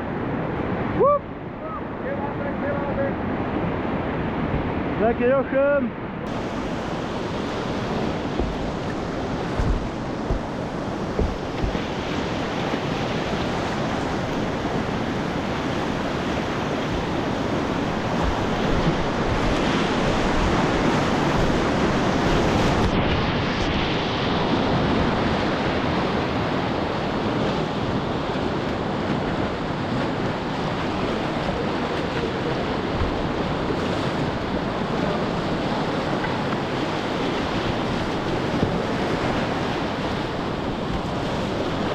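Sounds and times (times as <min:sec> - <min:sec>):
whitewater rapids rushing: 0:06.3 - 0:41.9
dull knocks: 0:07.9 - 0:12.1, 0:17.9 - 0:19.4.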